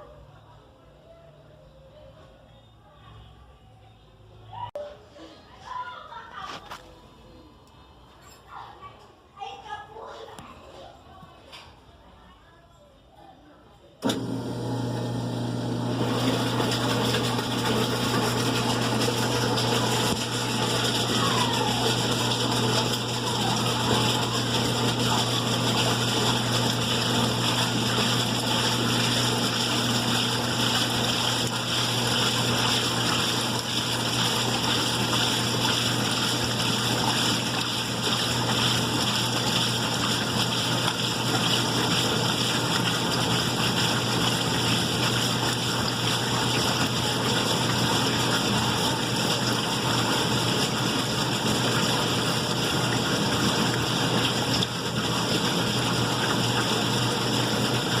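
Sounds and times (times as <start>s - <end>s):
washing machine running: 14.0s - 58.0s
water noise: 14.0s - 58.0s.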